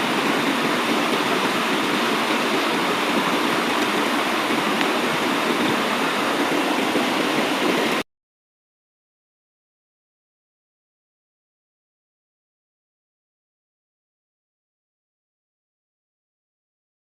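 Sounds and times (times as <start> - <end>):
river water rushing: 0.0 - 8.0.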